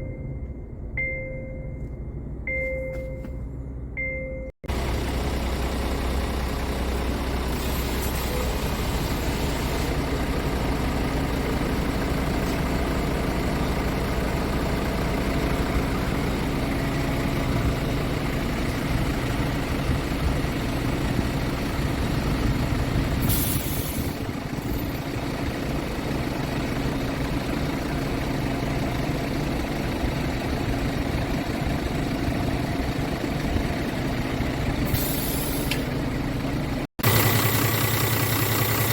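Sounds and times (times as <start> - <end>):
diesel truck engine idling: 0.0 - 38.9
air hissing from truck: 7.5 - 10.1, 23.2 - 24.3, 34.9 - 35.9.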